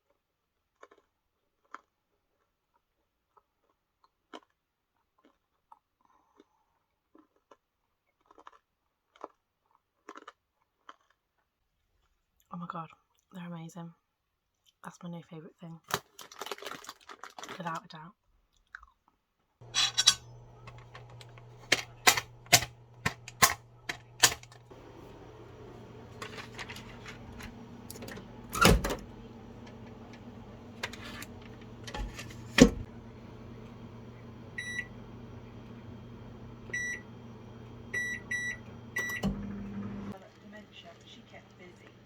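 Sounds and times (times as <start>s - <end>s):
microwave oven humming: 19.6s - 42.0s.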